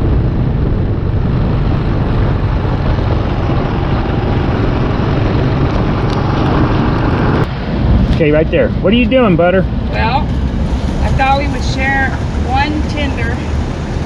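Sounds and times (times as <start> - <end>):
motorcycle engine running: 0.0 - 7.5
wind noise: 0.0 - 14.0.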